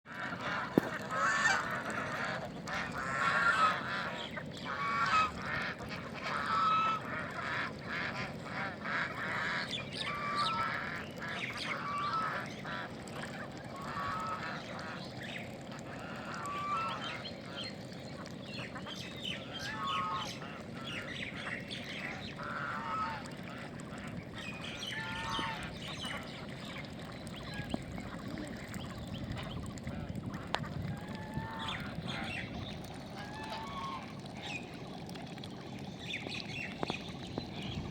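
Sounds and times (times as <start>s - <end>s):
flock of birds honking: 0.2s - 13.0s, 18.6s - 26.6s.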